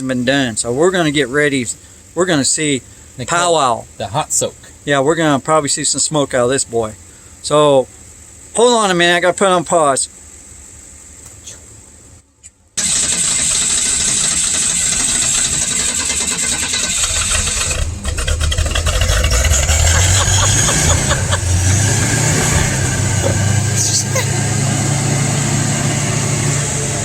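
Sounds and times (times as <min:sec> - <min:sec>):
car engine running: 0:12.8 - 0:27.0.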